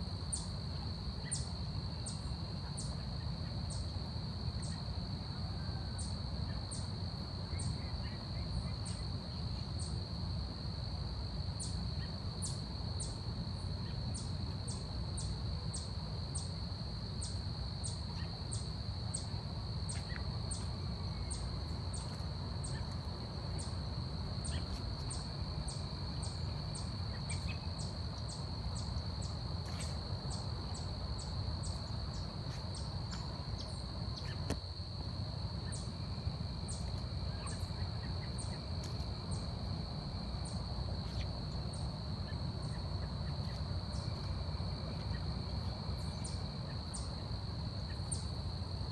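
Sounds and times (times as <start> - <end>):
insects droning: 0.0 - 48.9
very high insect chirps: 0.2 - 5.0, 5.6 - 10.3, 10.9 - 48.9.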